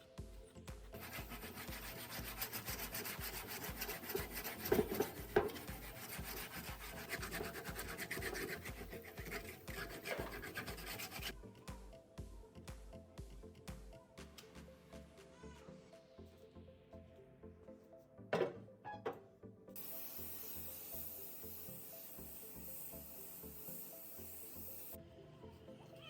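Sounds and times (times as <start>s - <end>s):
abrasive rubbing on a surface: 1.0s - 11.3s.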